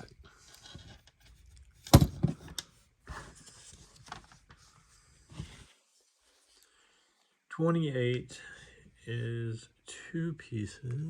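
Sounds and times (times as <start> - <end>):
plastic pieces knocking: 1.9 - 2.5.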